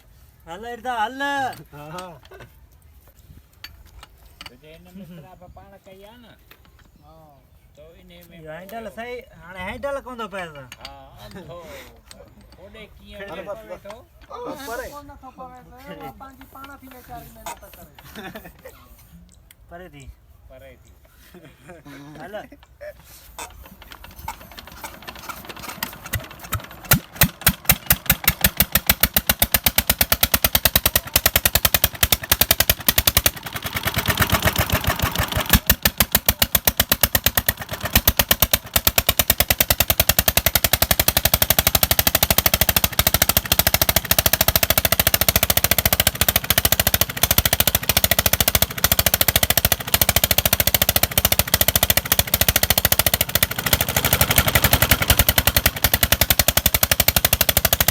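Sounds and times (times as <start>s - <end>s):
diesel engine exhaust bangs: 23.4s - 57.9s.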